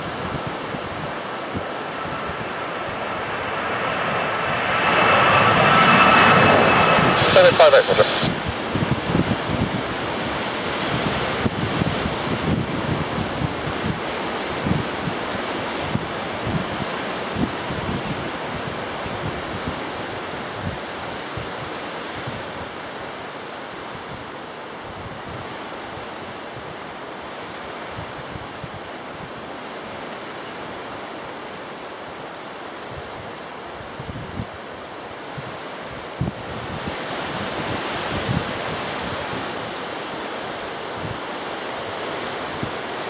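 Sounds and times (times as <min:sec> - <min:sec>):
gusty wind buffeting microphone: 0:00.0 - 0:14.0.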